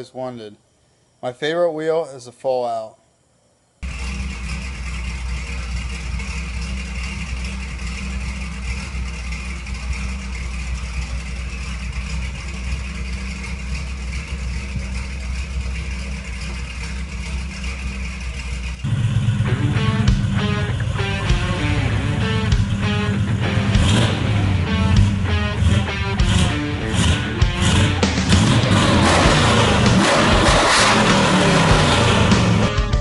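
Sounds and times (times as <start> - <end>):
pickup truck engine running: 3.8 - 33.0
guitar music: 18.9 - 33.0.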